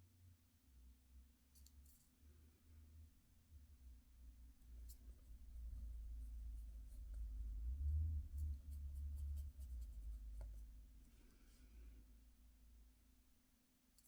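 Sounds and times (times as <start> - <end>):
rumble of handling and bumping: 4.6 - 11.3
soft scratching: 4.6 - 11.8.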